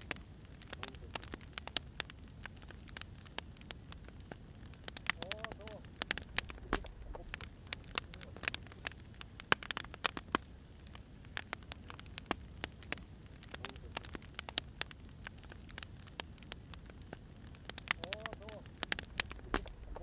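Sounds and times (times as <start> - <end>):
firewood crackling: 0.0 - 20.0
low steady rumble: 2.0 - 9.4, 16.7 - 20.0.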